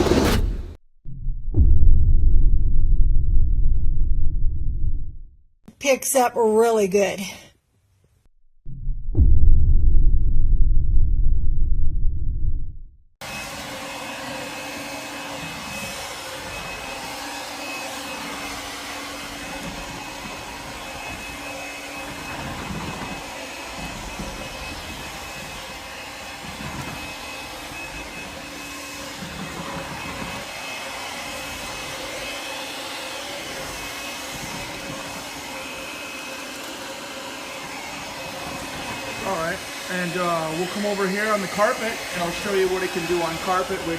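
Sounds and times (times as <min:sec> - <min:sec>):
vacuum cleaner running: 0:13.2 - 0:43.9.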